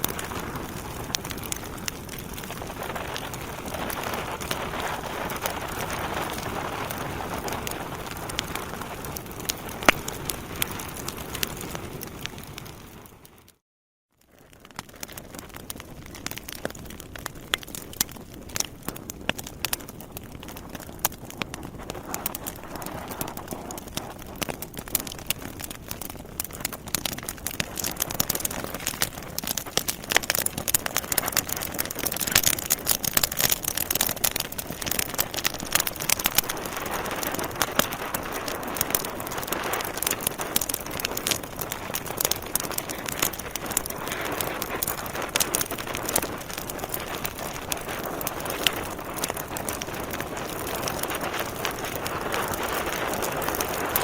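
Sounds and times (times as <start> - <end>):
fire crackling and popping: 0.0 - 13.6, 14.2 - 54.0.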